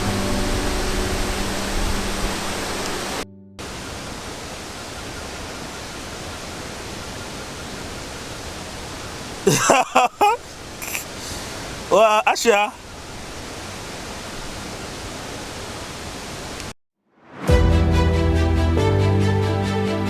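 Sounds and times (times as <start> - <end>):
held music chord: 0.0 - 3.8, 17.5 - 20.0
waterfall roaring: 0.0 - 16.7.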